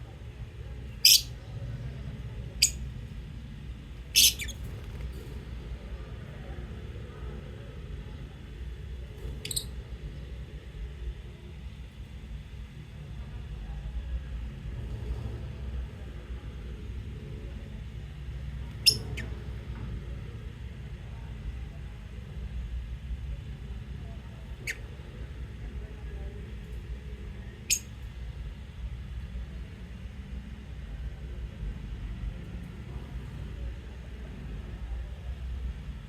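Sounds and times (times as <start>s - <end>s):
steady low rumble: 0.0s - 36.0s
lovebirds chirping shrilly: 1.0s - 1.3s, 4.2s - 4.5s.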